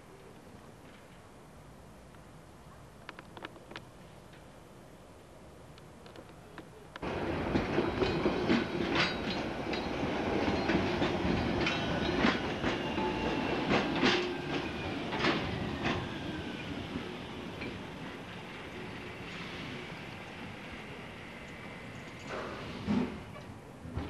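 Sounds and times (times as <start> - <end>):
railcar running rumble and hum: 6.8 - 24.0
train wheels clicking over track: 7.0 - 24.0.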